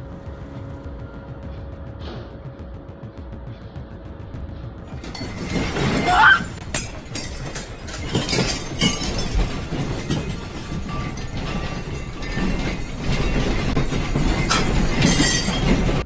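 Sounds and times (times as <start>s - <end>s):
constant low rumble: 0.0s - 16.0s
objects rattling and clattering: 3.4s - 16.0s.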